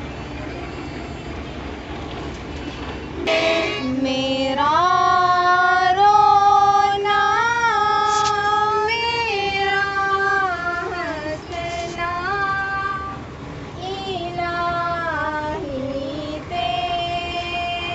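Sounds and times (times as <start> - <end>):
girl singing slow melody: 3.8 - 17.9.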